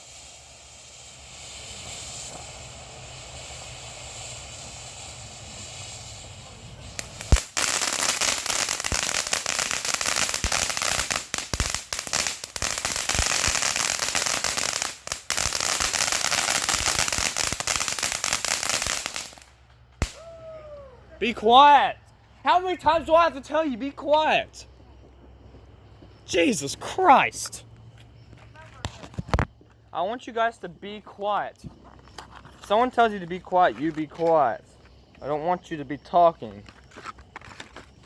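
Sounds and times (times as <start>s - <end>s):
steady hiss: 0.0s - 20.2s, 25.9s - 27.8s
firework bangs: 0.0s - 20.3s
firework crackling: 0.0s - 20.4s.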